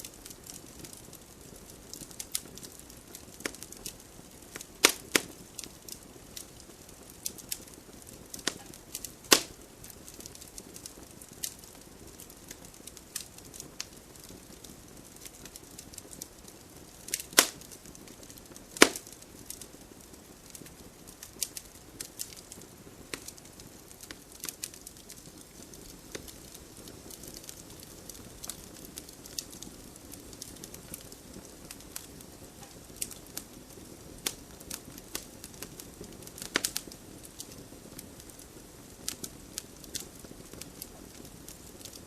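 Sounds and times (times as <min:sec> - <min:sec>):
campfire crackling: 0:00.0 - 0:42.0
sharp pops and snaps: 0:04.5 - 0:05.7, 0:08.3 - 0:09.6, 0:17.1 - 0:17.7, 0:18.8 - 0:19.6, 0:36.0 - 0:37.6.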